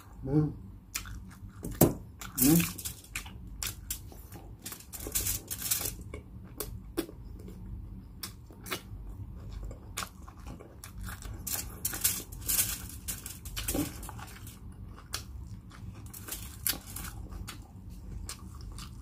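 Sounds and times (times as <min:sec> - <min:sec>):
chewing crispy food: 0:00.8 - 0:19.0.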